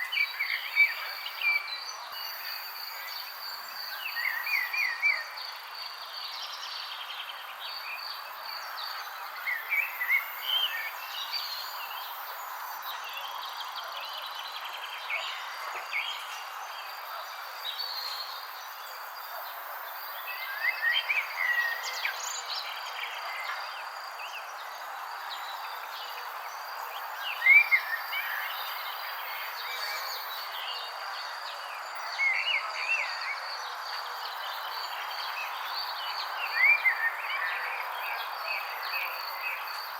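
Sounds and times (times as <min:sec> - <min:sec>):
steady outdoor hiss: 0:00.0 - 0:39.9.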